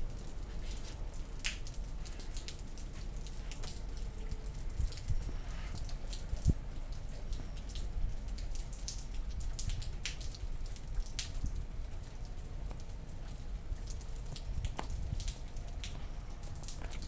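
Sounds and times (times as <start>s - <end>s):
rain falling: 0.0s - 17.0s
raindrops tapping: 0.0s - 17.0s.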